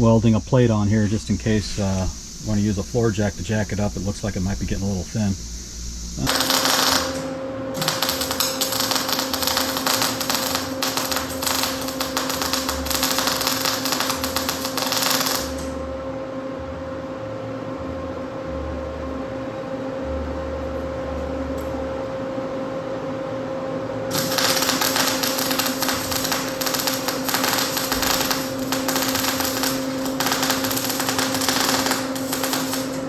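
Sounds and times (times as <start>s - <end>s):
sandblaster hissing: 0.0s - 15.8s, 24.1s - 33.0s
steady motor hum: 0.0s - 33.0s.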